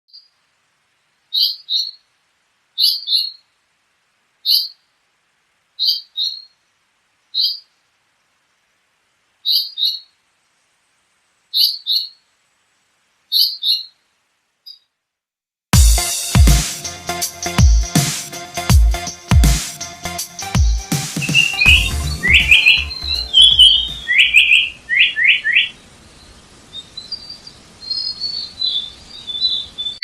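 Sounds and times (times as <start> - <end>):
songbird chirping: 0.1 - 2.2, 2.8 - 3.6, 4.4 - 5.0, 5.8 - 6.7, 7.3 - 7.9, 9.4 - 10.2, 11.5 - 12.4, 13.3 - 15.0, 16.8 - 30.0.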